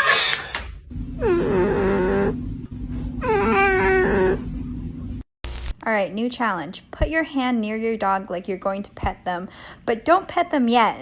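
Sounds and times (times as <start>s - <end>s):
steady low hum: 0.6s - 5.8s.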